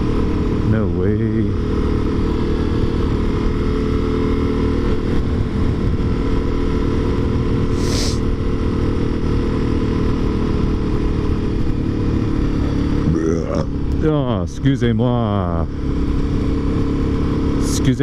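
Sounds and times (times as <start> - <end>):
motorcycle engine running: 0.0 - 18.0
brief high hiss: 7.8 - 8.2.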